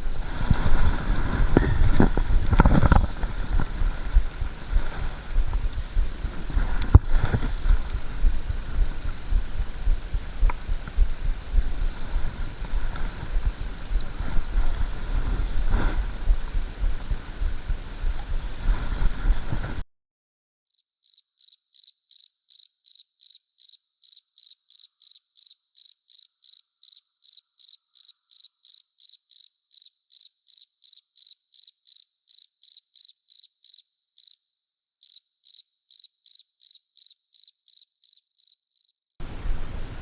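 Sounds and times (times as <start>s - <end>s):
crickets chirping: 0.0s - 19.8s, 39.2s - 40.0s.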